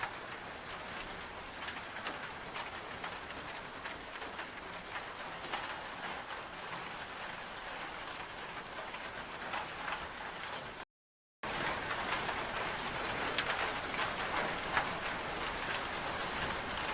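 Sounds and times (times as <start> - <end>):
rain drops ticking: 0.0 - 10.8, 11.4 - 16.9.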